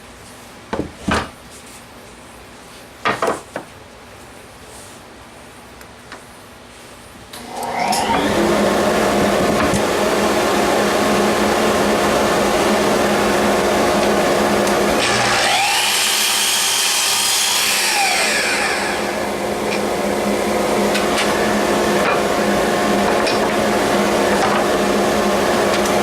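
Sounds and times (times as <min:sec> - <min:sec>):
dust extractor running: 0:07.4 - 0:26.0
chop saw cutting wood: 0:14.0 - 0:19.9.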